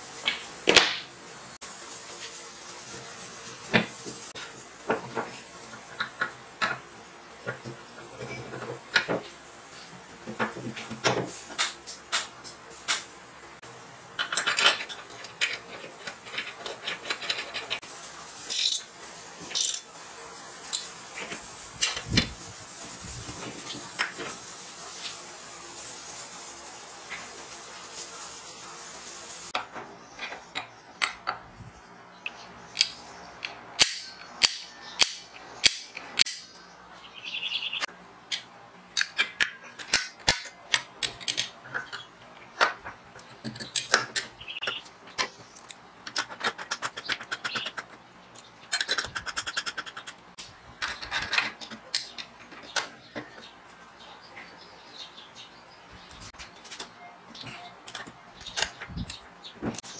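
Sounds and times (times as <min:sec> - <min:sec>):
wrench and bolts clinking on metal: 0:14.2 - 0:17.8, 0:18.5 - 0:18.9, 0:19.5 - 0:19.9.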